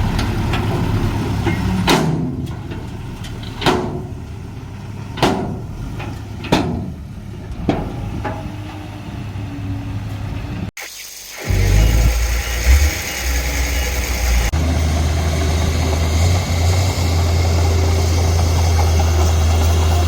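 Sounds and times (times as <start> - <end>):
deep engine rumble: 0.0 - 10.7, 11.5 - 20.0
sharp metallic knocks: 5.2 - 5.7
heavy machine engine running: 11.5 - 20.0.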